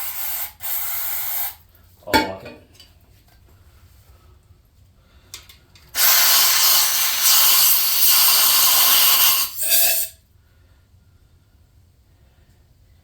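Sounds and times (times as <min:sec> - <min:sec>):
aerosol spray hissing: 0:06.0 - 0:10.1.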